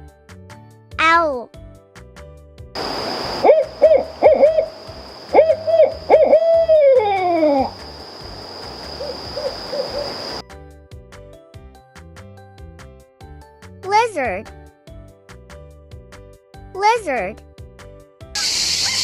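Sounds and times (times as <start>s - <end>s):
owl hooting: 2.8s - 10.4s.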